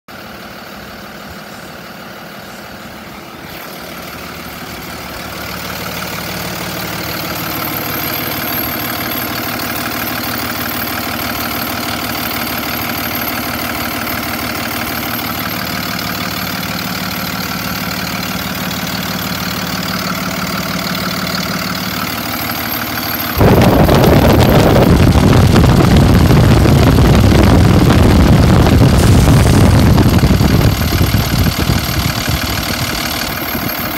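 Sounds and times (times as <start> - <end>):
truck engine running: 0.1 - 33.9
loud rushing roar: 23.4 - 33.7.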